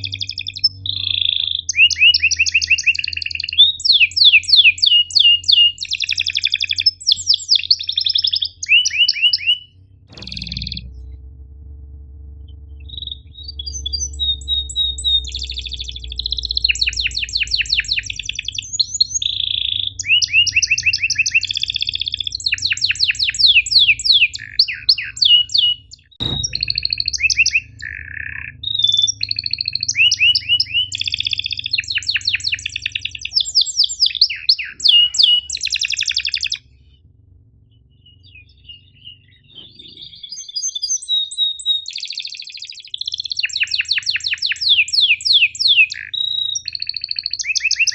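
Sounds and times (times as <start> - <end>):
canary singing trills: 0.0 - 11.1, 12.5 - 47.9
steady low hum: 3.7 - 40.5
sharp click: 10.1 - 11.2.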